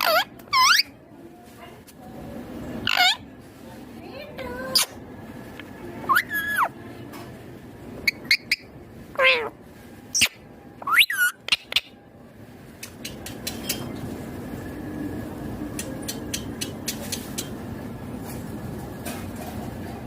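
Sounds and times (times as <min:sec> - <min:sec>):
parakeet chirps and gliding calls: 0:00.0 - 0:01.0, 0:02.8 - 0:03.3, 0:04.7 - 0:05.0, 0:06.0 - 0:06.8, 0:08.0 - 0:12.0
low background noise: 0:00.0 - 0:20.0.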